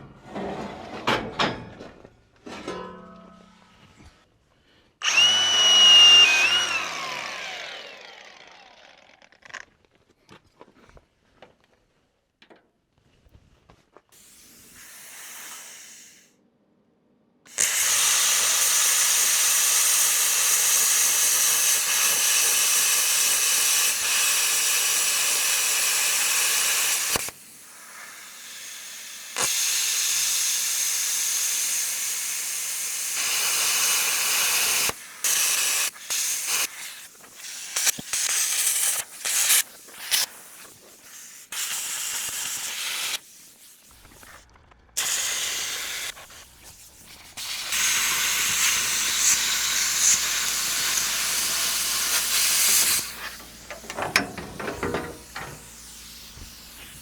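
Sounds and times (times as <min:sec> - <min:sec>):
power tool whine spinning down: 0:05.0 - 0:09.4
loud steady hiss: 0:17.5 - 0:40.6, 0:47.4 - 0:57.0.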